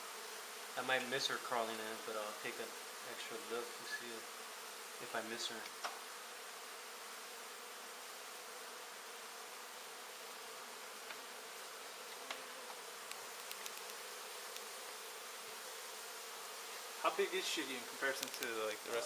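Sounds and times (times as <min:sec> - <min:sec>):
buzzing hum of honey bees: 0:00.0 - 0:19.0
faint clicks: 0:13.0 - 0:14.7, 0:18.2 - 0:19.0.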